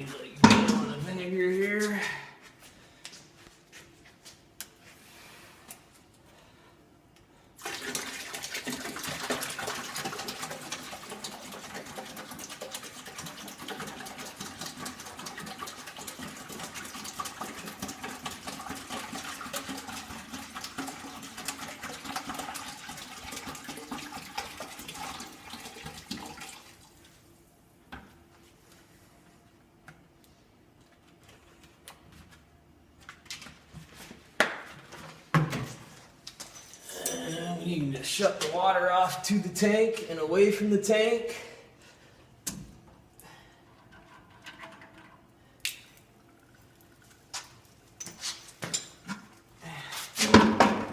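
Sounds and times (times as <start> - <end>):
liquid pouring into a bucket: 7.6 - 27.3, 43.7 - 50.9.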